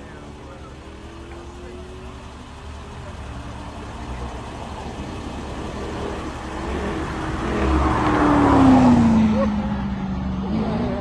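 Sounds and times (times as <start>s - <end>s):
car engine passing by: 3.0s - 11.0s.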